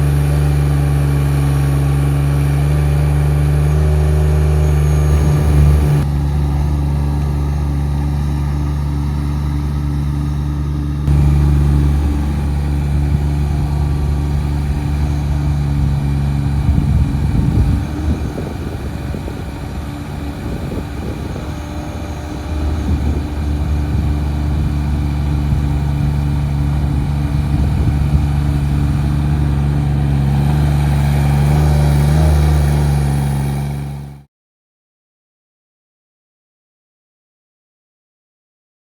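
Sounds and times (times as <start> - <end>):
small diesel engine running: 0.0 - 34.3.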